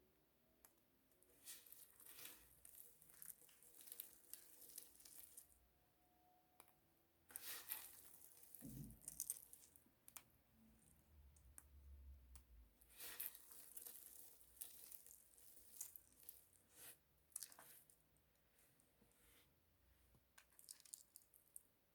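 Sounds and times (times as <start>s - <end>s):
bar soap crackling: 1.4s - 5.6s, 12.9s - 16.8s.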